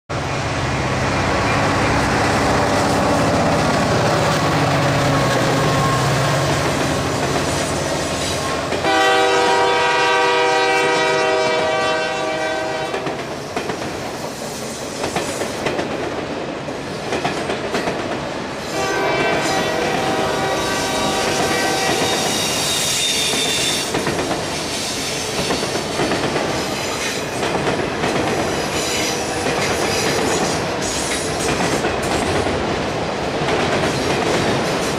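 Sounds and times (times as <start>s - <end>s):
diesel locomotive rumble: 0.1s - 13.4s
train wheels clattering on rails: 1.4s - 34.9s
train air horn blast: 5.1s - 13.2s, 18.7s - 23.9s, 28.8s - 29.7s.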